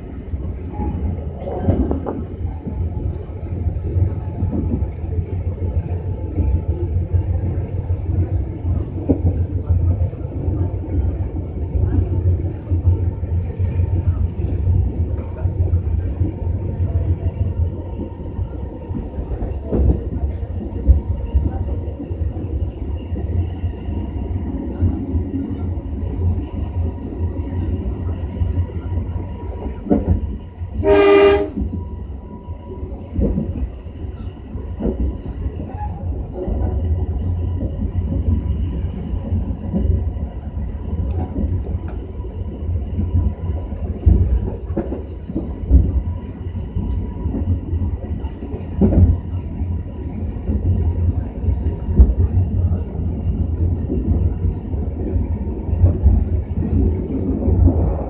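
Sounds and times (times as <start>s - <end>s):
train wheels rumbling on track: 0.0s - 58.0s
train horn blast: 30.8s - 31.7s.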